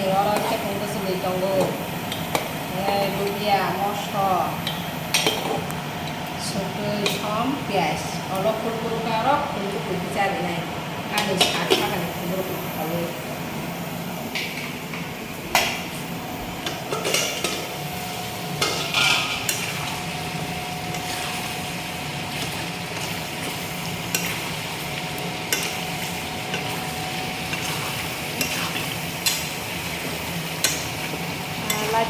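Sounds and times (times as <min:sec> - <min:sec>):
curry sizzling in a pan: 0:11.2 - 0:32.0
spoon scraping and knocking pan: 0:18.6 - 0:20.0, 0:25.4 - 0:32.0.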